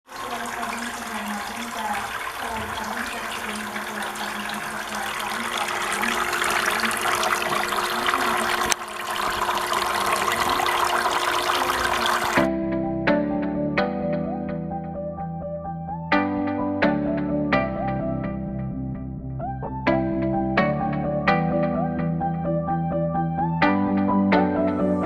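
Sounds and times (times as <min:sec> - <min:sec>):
water splashing and trickling: 0:00.0 - 0:12.5
music: 0:12.1 - 0:25.0.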